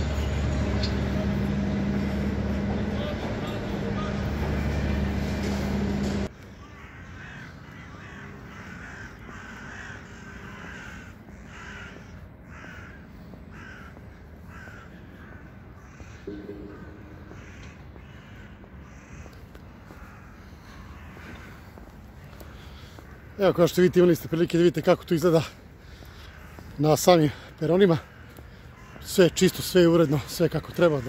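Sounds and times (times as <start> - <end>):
birds cawing: 0.0 - 31.0
brief low sound: 16.3 - 17.8.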